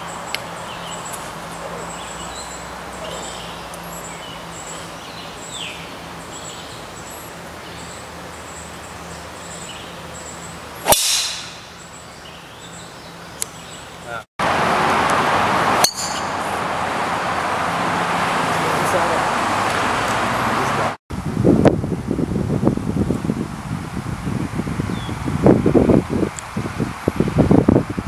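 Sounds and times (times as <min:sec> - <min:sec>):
golf club striking ball: 0:10.8 - 0:11.8, 0:15.8 - 0:16.5.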